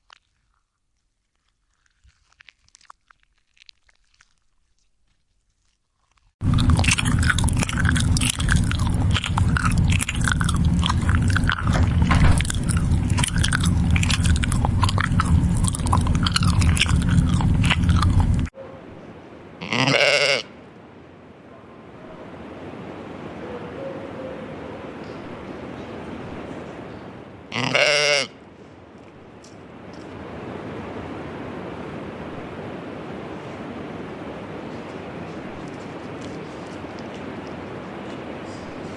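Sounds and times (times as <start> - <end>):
loud crunching and crackling: 0.0 - 18.5
steady low hum: 6.4 - 19.6
goat bleating: 19.6 - 20.6, 27.5 - 28.4.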